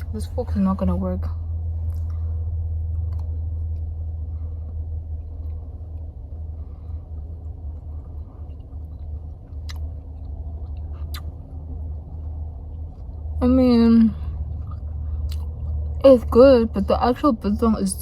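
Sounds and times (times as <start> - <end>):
low rumble: 0.0 - 18.0
chewing dried meat: 1.8 - 13.4, 14.2 - 16.0.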